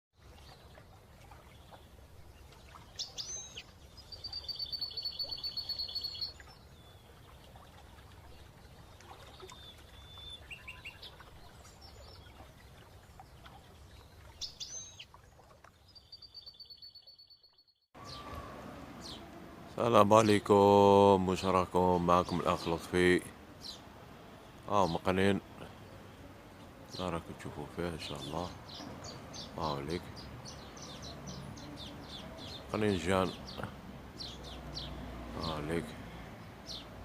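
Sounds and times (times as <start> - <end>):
soft bird chirps: 0.3 - 19.4
finch calls and trills: 2.9 - 7.0, 9.4 - 12.4, 13.2 - 15.1, 26.6 - 35.9.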